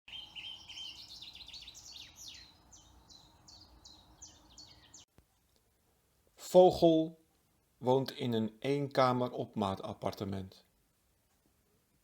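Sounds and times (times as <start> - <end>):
songbird singing: 0.1 - 5.1.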